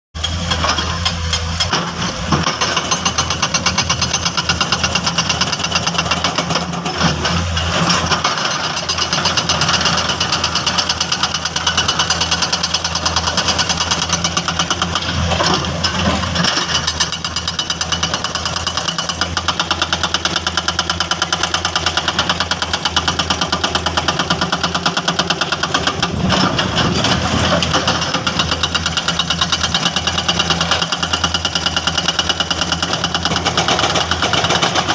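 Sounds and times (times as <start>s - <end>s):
hydraulic breaker hammering: 0.2s - 34.9s
diesel engine running: 9.0s - 34.9s.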